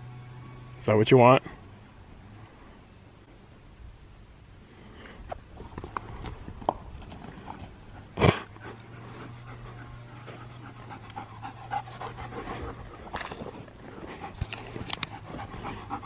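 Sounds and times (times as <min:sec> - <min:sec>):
dog panting hard: 0:07.6 - 0:16.0.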